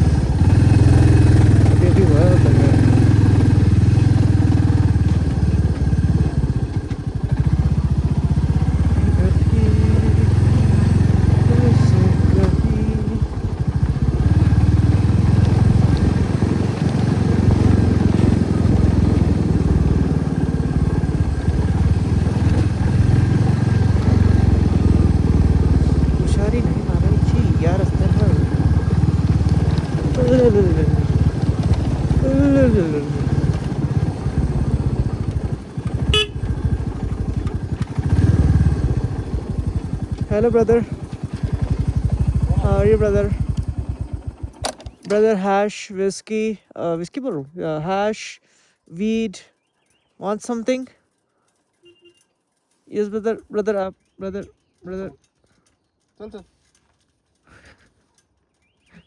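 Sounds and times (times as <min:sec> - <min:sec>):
motorcycle engine running: 0:00.0 - 0:45.7, 0:57.4 - 0:59.0
short horn beep: 0:36.0 - 0:36.5, 0:51.8 - 0:52.4.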